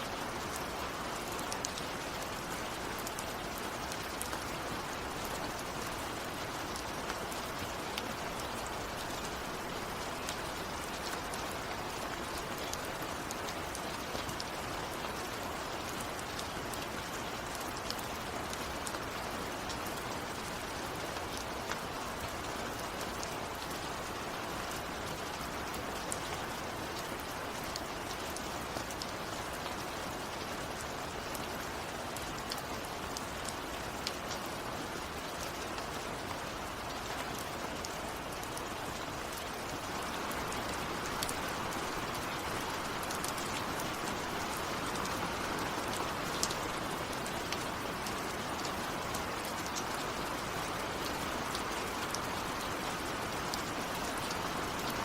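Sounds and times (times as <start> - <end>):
steady rain falling: 0.0 - 55.0
raindrops ticking on hard surface: 37.3 - 55.0.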